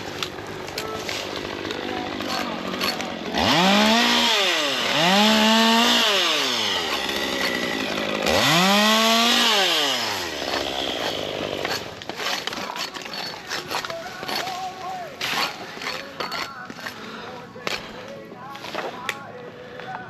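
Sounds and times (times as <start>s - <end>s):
two-stroke chainsaw revving: 0.0s - 14.5s.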